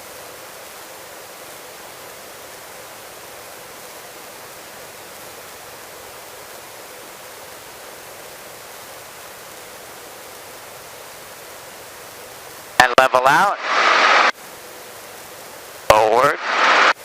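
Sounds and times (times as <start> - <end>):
helicopter cabin noise hiss: 12.7 - 14.4, 15.8 - 17.0.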